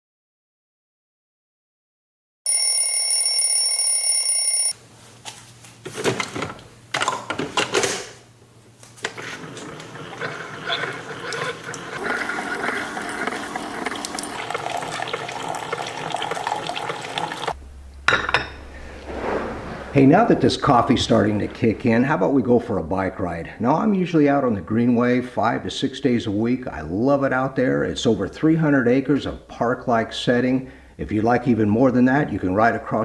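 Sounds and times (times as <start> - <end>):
loud electronic alarm ringing: 2.5 - 4.8
running water: 9.1 - 17.6.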